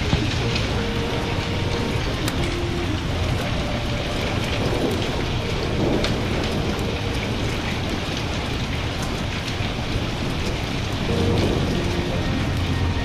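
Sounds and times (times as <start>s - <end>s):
crackling wood fire: 0.0s - 13.0s
low rumble of thunder: 0.0s - 13.0s
steady rain: 0.0s - 13.0s.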